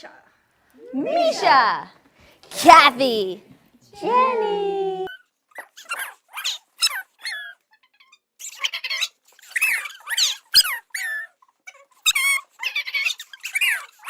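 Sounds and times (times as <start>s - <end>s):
high-pitched squeaky squeals: 5.1s - 14.0s.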